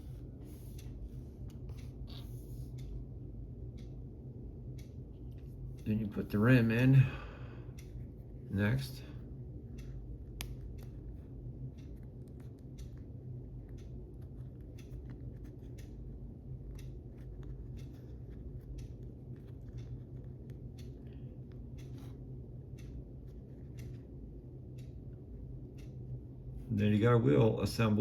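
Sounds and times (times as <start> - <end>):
steady low hum: 0.0 - 28.0
small clicks and snips: 9.7 - 22.2, 22.8 - 25.2.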